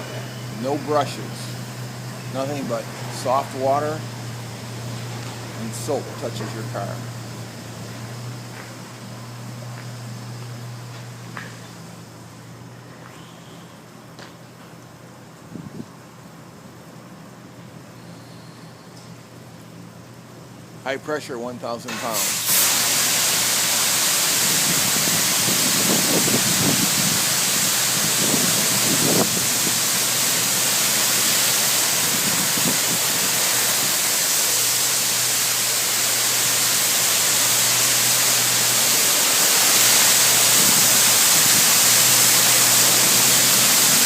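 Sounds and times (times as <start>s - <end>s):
high-pressure water jets spraying: 0.0s - 12.0s, 21.9s - 44.0s.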